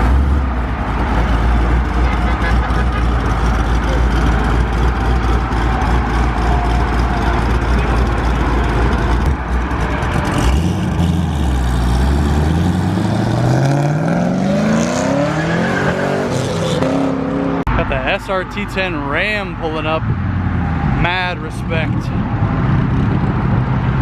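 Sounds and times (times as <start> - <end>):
car engine revving: 0.0 - 18.4.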